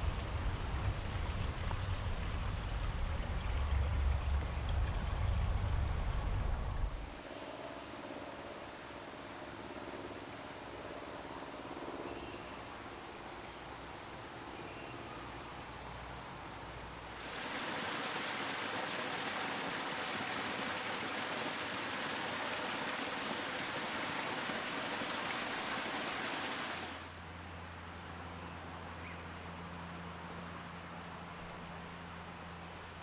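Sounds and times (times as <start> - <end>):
flowing water rushing: 17.0 - 27.2.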